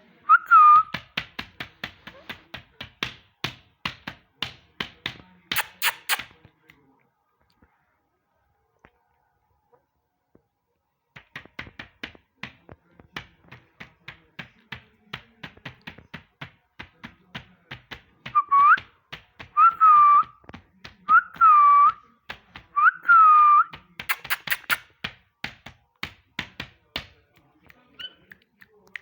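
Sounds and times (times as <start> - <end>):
parrot whistling: 5.6 - 6.3, 22.8 - 24.8
sharp clicks: 5.6 - 6.3, 24.0 - 24.9.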